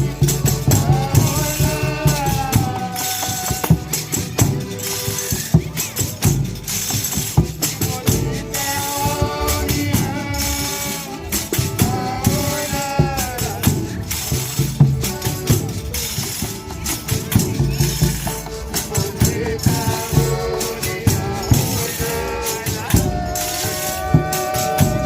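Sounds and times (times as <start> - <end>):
person singing: 0.0 - 4.4, 7.8 - 16.5, 18.4 - 25.0
tambourines struck and shaken: 0.0 - 25.0.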